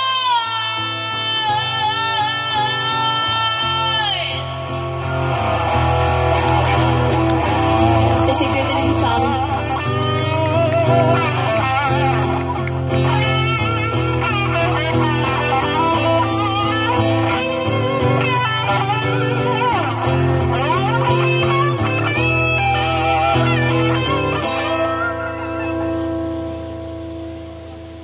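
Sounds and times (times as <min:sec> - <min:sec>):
guitar solo with bent notes: 0:00.0 - 0:28.0
bass and drums: 0:04.5 - 0:28.0.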